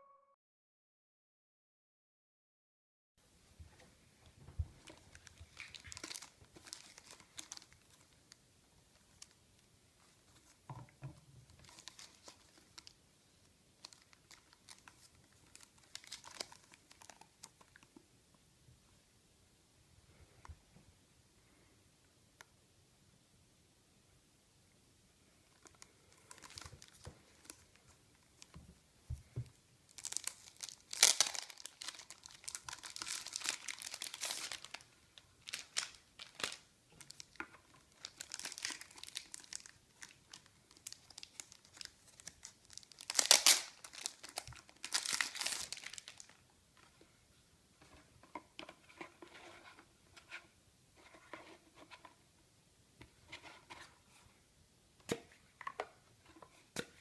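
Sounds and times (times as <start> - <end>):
packaging crinkling and tearing: 4.9 - 8.3, 11.5 - 13.0, 13.8 - 17.9, 25.6 - 27.7, 29.9 - 46.4.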